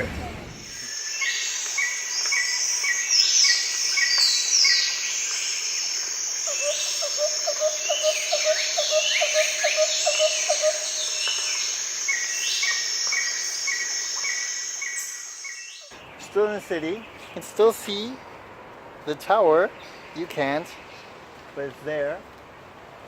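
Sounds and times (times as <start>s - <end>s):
insect drone: 0.5s - 16.2s
falling whistled bird calls: 0.6s - 16.0s.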